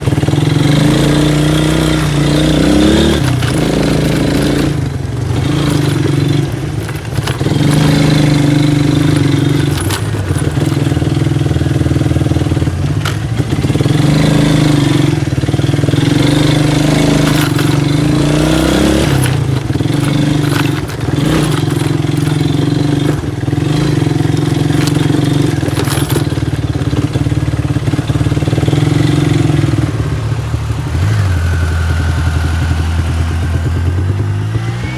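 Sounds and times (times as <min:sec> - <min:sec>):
engine running: 0:00.0 - 0:34.9.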